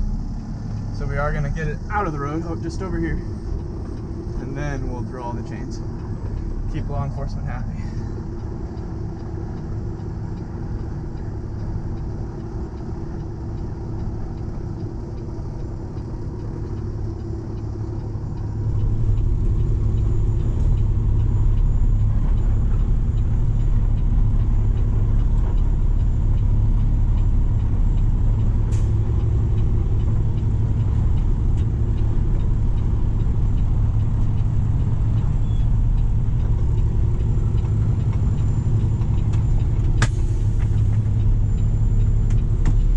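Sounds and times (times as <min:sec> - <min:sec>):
tow truck diesel engine: 0:00.0 - 0:42.9
sharp click: 0:39.2 - 0:41.0.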